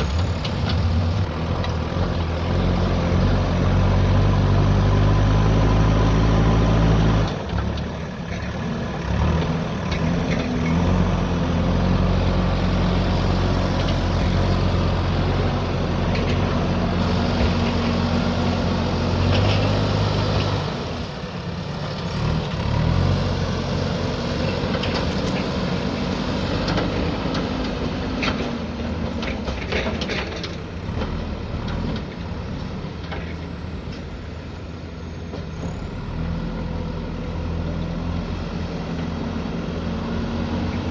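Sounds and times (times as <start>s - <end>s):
diesel engine working under load: 0.0s - 40.9s.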